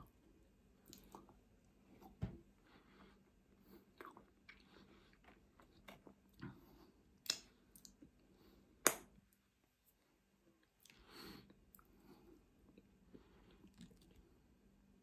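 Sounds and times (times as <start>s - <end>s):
person chewing food: 0.8s - 1.4s, 2.9s - 9.0s.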